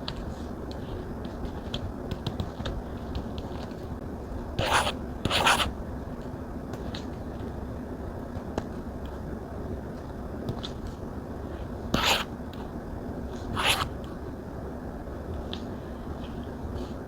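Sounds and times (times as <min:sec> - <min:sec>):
low background hum: 0:00.0 - 0:17.0
stylus scratchy strokes: 0:04.6 - 0:05.7, 0:12.0 - 0:12.3, 0:13.5 - 0:13.9.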